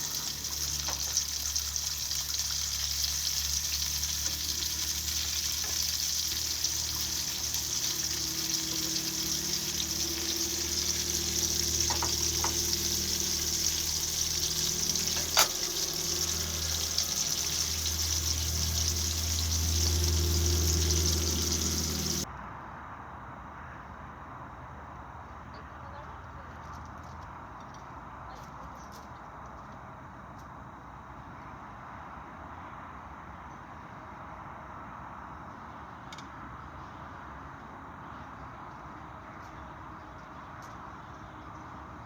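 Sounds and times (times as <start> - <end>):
food sizzling in a pan: 0.0 - 22.2.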